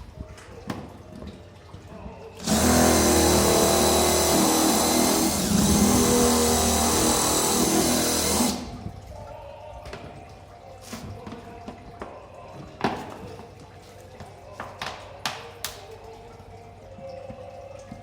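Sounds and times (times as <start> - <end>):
electric drill boring into plastic: 2.4 - 8.7.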